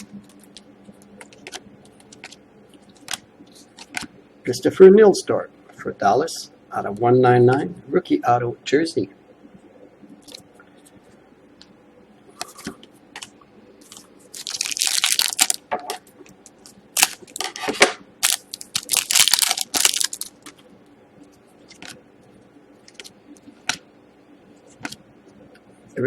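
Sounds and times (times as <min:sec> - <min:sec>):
cards clicking and rustling: 0:13.9 - 0:15.6, 0:16.5 - 0:20.6
wrapper tearing and crinkling: 0:13.9 - 0:15.6, 0:17.0 - 0:17.6, 0:18.2 - 0:20.5.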